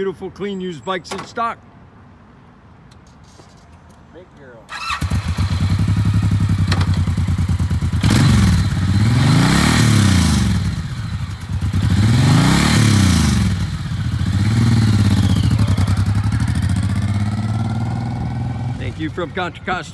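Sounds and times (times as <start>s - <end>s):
motorcycle engine idling and revving: 4.7s - 19.7s.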